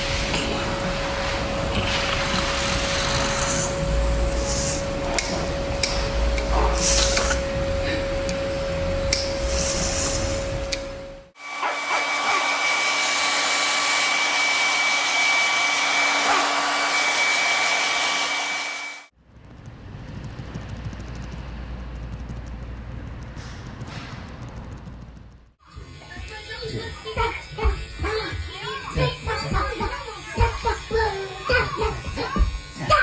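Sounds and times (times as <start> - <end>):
pet dryer motor whine: 0.0 - 9.4, 10.2 - 19.1, 25.6 - 33.0.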